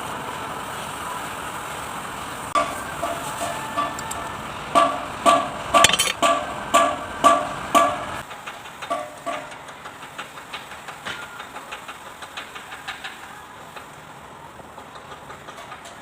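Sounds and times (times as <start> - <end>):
metal being struck: 4.8 - 8.2.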